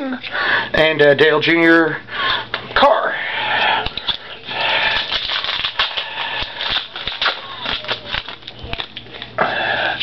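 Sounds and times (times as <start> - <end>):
foil wrapper crinkling: 4.0 - 9.4
cards clicking and rustling: 5.0 - 9.4.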